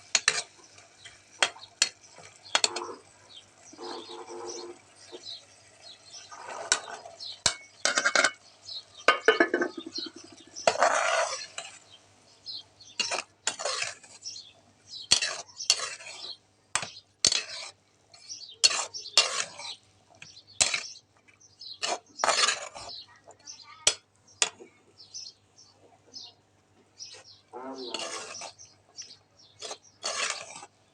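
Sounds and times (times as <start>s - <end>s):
metal spoon scraping in a pot: 0.0s - 3.1s, 3.7s - 5.4s, 6.1s - 8.4s, 9.1s - 11.9s, 12.9s - 19.8s, 20.5s - 21.0s, 21.6s - 23.0s, 27.0s - 30.8s.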